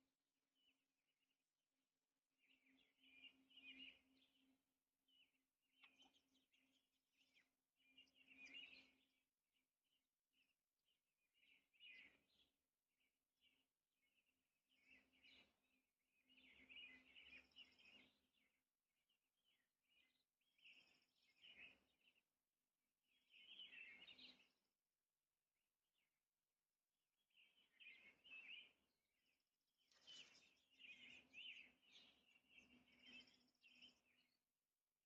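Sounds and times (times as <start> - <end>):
robin singing: 2.4 - 9.3, 11.3 - 12.5, 14.7 - 18.6, 19.4 - 22.3, 23.1 - 24.6, 27.3 - 34.5.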